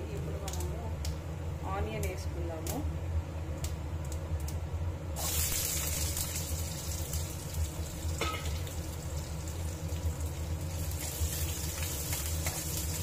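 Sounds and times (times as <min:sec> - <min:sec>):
onion sizzling in hot oil: 0:05.1 - 0:13.0.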